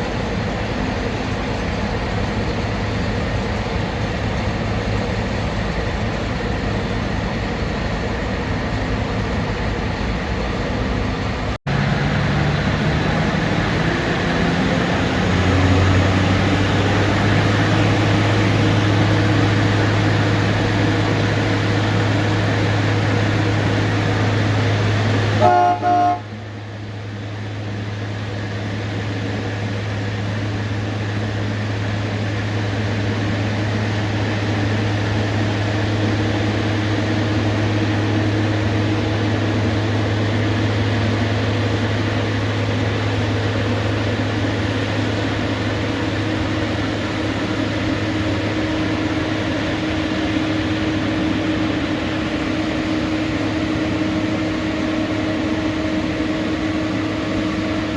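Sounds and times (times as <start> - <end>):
locomotive humming: 0.0 - 57.9
train whistle toot: 25.4 - 26.4.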